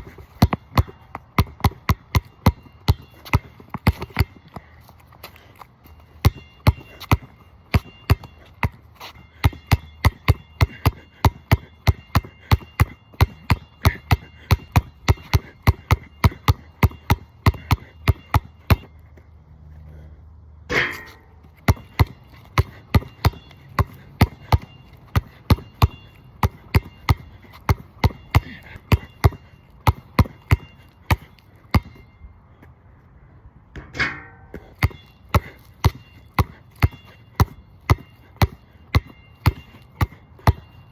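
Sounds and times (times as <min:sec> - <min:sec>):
basketball bouncing on wet court: 0:00.0 - 0:04.7, 0:06.2 - 0:18.9, 0:20.7 - 0:32.0, 0:33.8 - 0:40.8
loud ringing ball hits: 0:20.7 - 0:22.1, 0:33.8 - 0:35.2.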